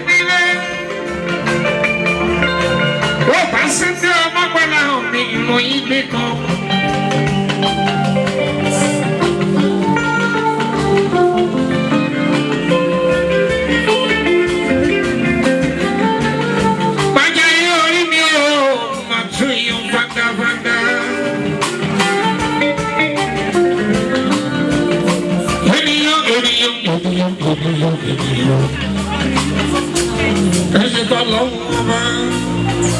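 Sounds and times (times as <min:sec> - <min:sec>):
live band music: 0:00.0 - 0:32.9
person singing: 0:00.0 - 0:32.9.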